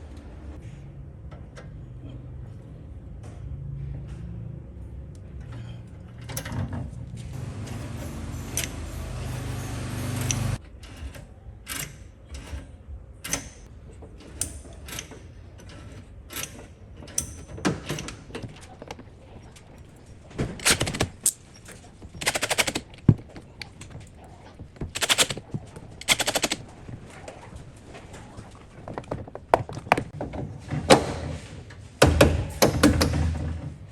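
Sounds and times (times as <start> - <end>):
rapid rattling bursts: 19.1 - 29.6.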